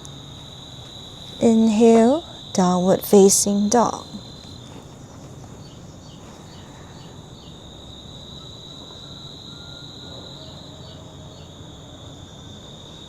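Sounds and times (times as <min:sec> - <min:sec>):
faint low background rumble: 0:00.0 - 0:09.0
insects trilling: 0:00.0 - 0:13.0.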